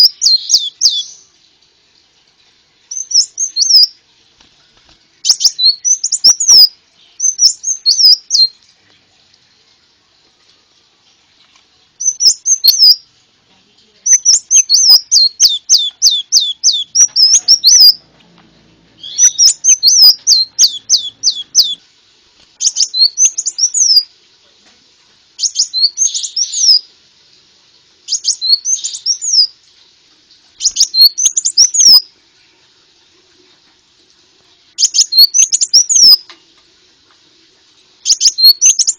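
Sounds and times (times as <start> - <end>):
bird chirps and trills: 0.0 - 1.3, 2.9 - 4.0, 5.2 - 8.6, 12.0 - 13.0, 14.1 - 18.0, 19.0 - 21.8, 22.6 - 24.1, 25.4 - 26.9, 28.1 - 29.5, 30.6 - 32.0, 34.8 - 36.3, 38.0 - 38.9.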